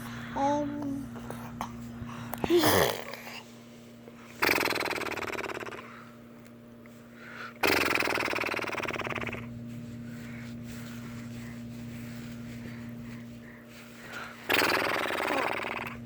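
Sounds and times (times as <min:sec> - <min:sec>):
electrical hum: 0:00.0 - 0:16.0
vocal noises: 0:02.4 - 0:03.4, 0:07.6 - 0:09.5, 0:14.5 - 0:16.0
raspy buzzing vocal noises: 0:04.4 - 0:05.9, 0:07.6 - 0:09.5, 0:14.5 - 0:16.0.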